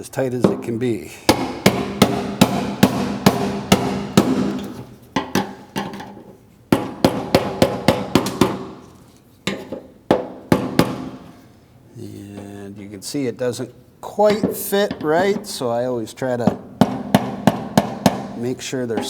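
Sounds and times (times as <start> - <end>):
hammer striking metal ring: 1.3 - 6.0, 9.5 - 11.4, 16.4 - 19.0.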